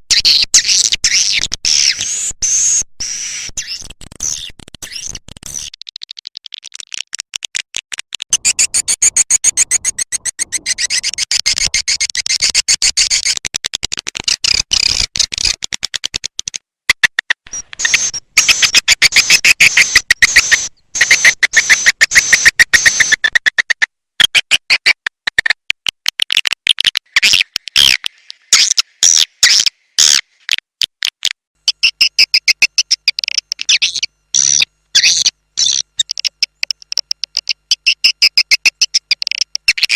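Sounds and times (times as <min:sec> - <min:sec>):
swiftlet chirps and clicks: 0:01.8 - 0:06.5, 0:08.2 - 0:13.4, 0:17.6 - 0:23.8, 0:31.7 - 0:39.9.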